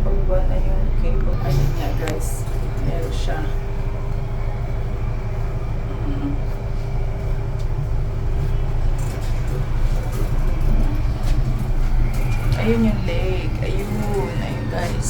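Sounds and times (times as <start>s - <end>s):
amusement ride mechanical rumble: 0.0s - 15.0s
faint constant hum: 0.0s - 15.0s.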